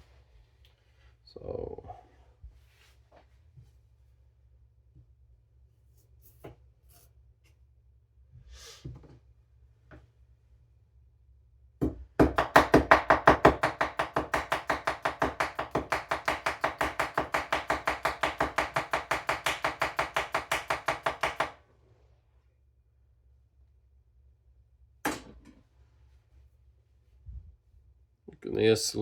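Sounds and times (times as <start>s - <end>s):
knife tapping cutting board: 12.4s - 21.5s.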